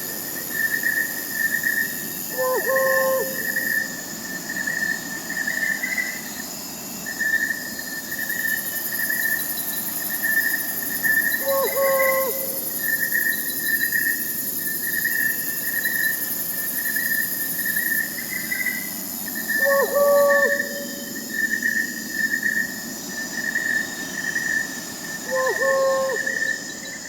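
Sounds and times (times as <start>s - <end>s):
crickets chirping in trills: 0.0s - 27.0s
high insect hum: 0.0s - 27.0s
owl hoot: 2.3s - 3.8s, 11.4s - 12.7s, 19.5s - 21.2s, 25.2s - 26.8s.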